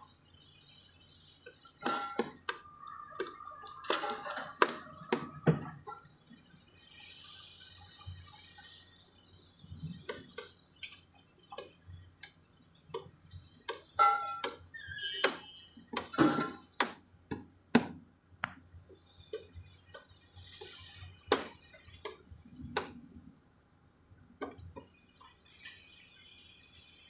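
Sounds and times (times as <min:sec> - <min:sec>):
sharp knocks and clanks: 0:19.3 - 0:23.0.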